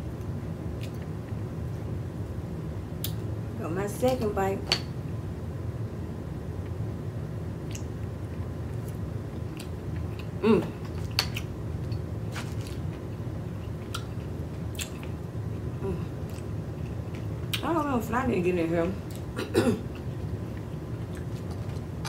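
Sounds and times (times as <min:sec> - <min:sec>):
steady low hum: 0:00.0 - 0:22.0
person chewing wetly: 0:08.7 - 0:15.2, 0:19.9 - 0:21.9.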